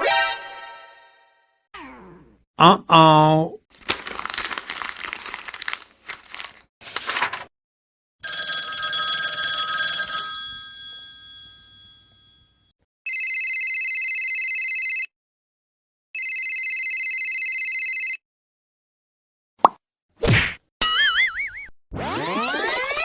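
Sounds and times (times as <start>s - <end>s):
electronic telephone ringtone: 8.2s - 15.1s, 16.2s - 18.2s.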